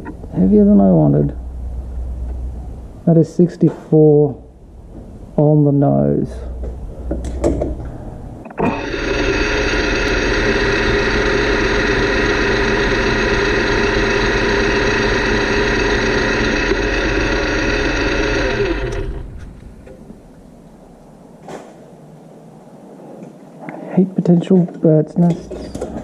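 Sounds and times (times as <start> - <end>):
metal lathe running: 8.5 - 20.3.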